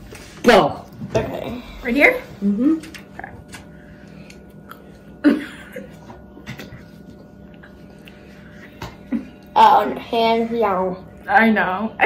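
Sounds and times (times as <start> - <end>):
fan hum: 0.0 - 12.0
people chewing: 2.4 - 9.6.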